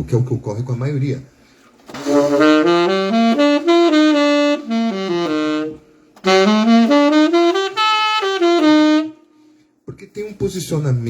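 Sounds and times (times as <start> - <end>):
saxophone melodic runs: 1.9 - 9.3.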